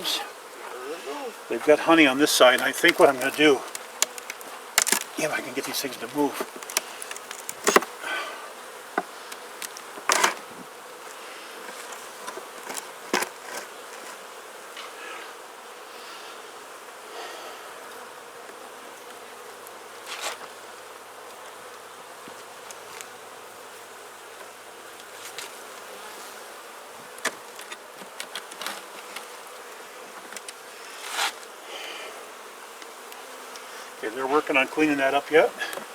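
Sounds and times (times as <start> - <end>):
honeybees buzzing: 0.0 - 35.9
wooden frames knocking and clicking: 6.4 - 7.9.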